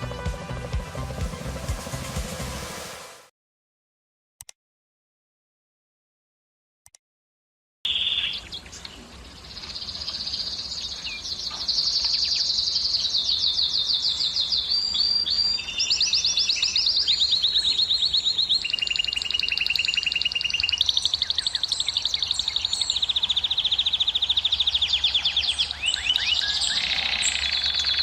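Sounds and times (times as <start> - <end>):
canary singing trills: 7.9 - 28.0.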